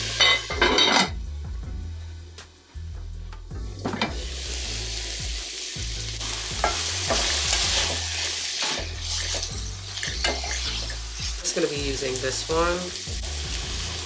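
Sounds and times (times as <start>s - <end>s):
sausage and onions sizzling in a pan: 0.0s - 0.8s, 3.5s - 14.0s
spatula scraping a pan: 8.6s - 11.4s.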